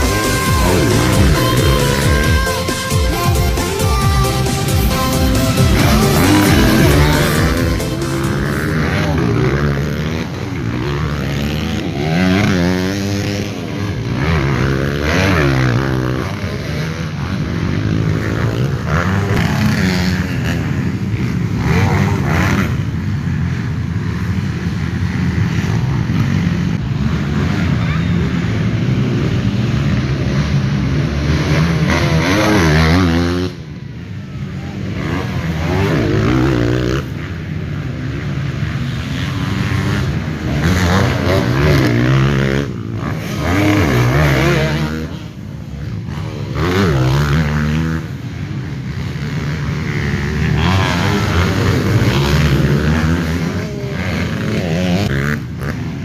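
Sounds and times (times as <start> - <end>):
motorcycle engines revving: 0.0 - 56.0.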